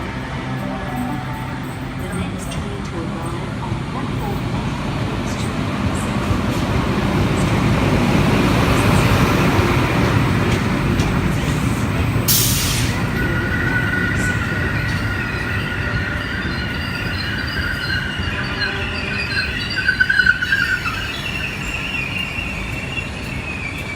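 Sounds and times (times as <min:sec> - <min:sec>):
train rumbling on rails: 0:00.0 - 0:23.9
wheels squealing on rails: 0:05.2 - 0:23.9.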